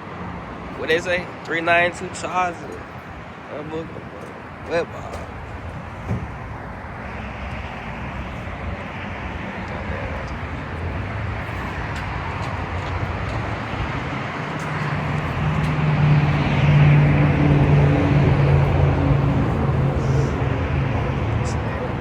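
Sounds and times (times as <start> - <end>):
car engine drone: 0.0 - 22.0
road and tyre noise: 0.0 - 22.0.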